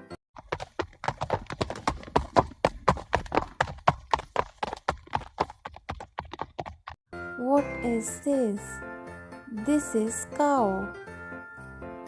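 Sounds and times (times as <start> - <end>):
horse hooves clip-clopping: 0.4 - 7.0.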